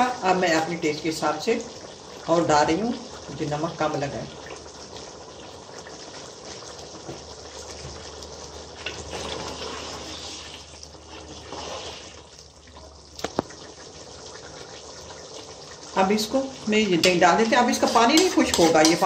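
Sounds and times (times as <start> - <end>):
meat frying and bubbling in pot: 0.0 - 19.0
wooden spoon stirring: 14.6 - 19.0.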